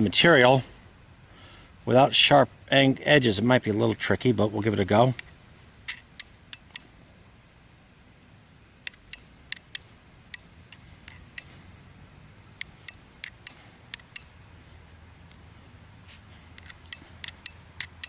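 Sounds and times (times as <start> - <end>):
steel knife striking rock: 8.9 - 11.6, 12.6 - 14.4, 16.6 - 18.0.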